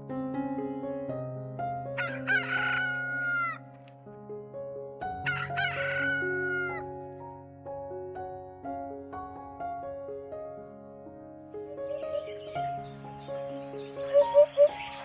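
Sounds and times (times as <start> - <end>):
background music: 1.4 - 4.2, 11.1 - 15.0
rooster crowing: 2.0 - 3.6, 5.3 - 6.8.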